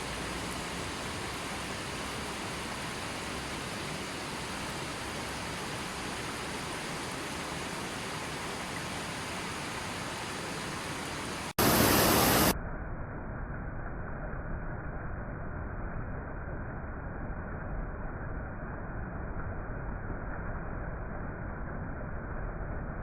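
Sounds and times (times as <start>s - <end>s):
water rushing: 0.0s - 12.5s
loud hiss: 11.6s - 12.5s.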